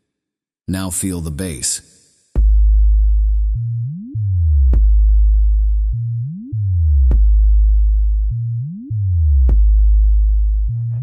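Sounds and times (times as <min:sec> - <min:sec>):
electronic sub-bass music: 0:02.4 - 0:11.0.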